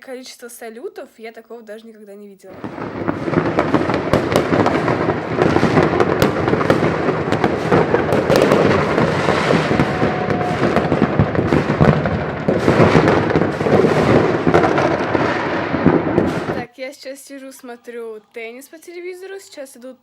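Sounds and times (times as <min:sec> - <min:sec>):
fireworks bangs and crackling: 0:02.5 - 0:16.7.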